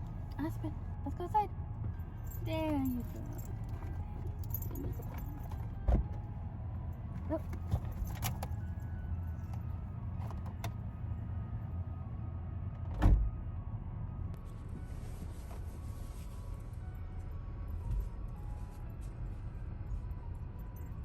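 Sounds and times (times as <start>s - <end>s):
car rumble: 0.0s - 21.0s
car door thumps: 12.9s - 13.3s.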